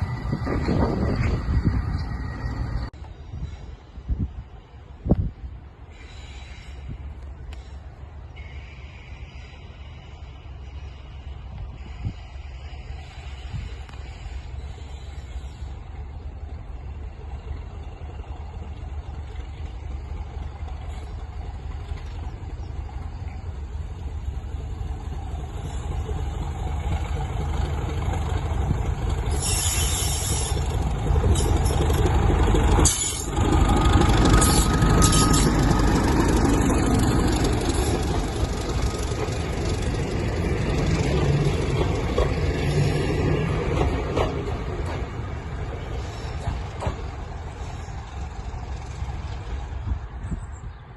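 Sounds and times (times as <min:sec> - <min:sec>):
diesel locomotive rumbling: 0:00.0 - 0:50.9
hiss burst: 0:29.2 - 0:31.7.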